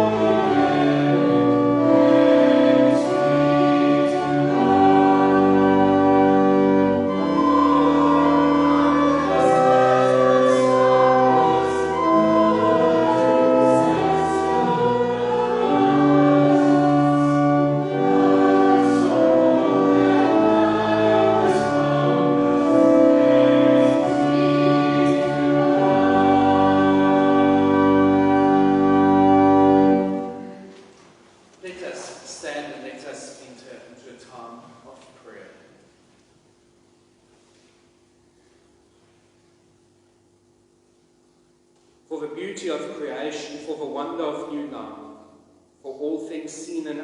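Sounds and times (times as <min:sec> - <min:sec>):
congregation singing a hymn: 0:00.0 - 0:30.7
organ accompaniment: 0:00.0 - 0:31.1.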